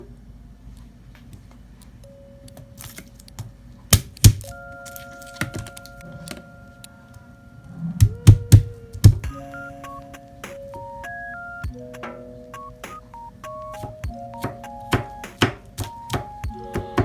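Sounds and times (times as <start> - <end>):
faint steady tones: 0.0 - 17.0.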